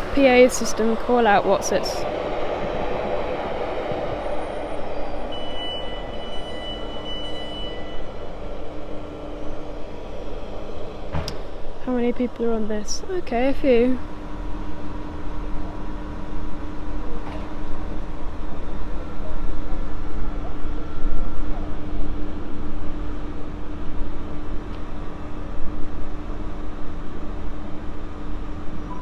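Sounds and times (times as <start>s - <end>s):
heavy low rumble: 0.0s - 15.3s
electric train humming: 0.0s - 29.0s.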